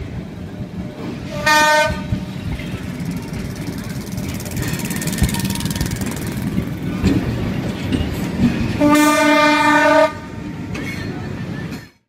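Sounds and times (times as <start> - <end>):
train wheels rumbling on rails: 0.0 - 12.0
train horn blast: 1.2 - 2.2, 8.8 - 10.4.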